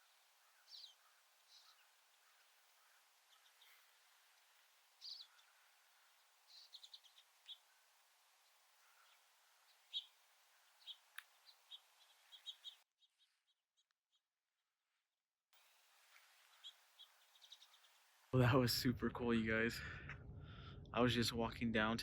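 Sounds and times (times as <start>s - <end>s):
small birds chirping: 0.0s - 14.2s, 15.6s - 18.3s.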